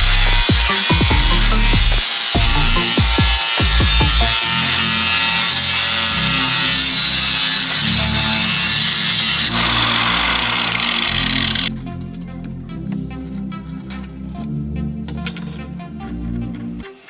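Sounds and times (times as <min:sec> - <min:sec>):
power tool hissing: 0:00.0 - 0:11.7
background music with bass: 0:00.0 - 0:16.9.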